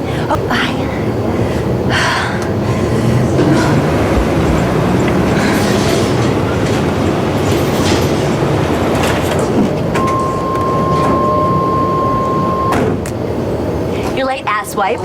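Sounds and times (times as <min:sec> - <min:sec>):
rattling rumble: 0:00.1 - 0:10.2
steady high beep: 0:10.0 - 0:12.8.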